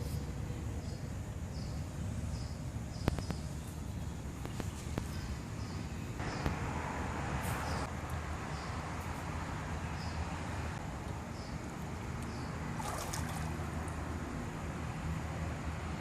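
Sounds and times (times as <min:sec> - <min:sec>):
pool pump humming: 0:10.9 - 0:14.8.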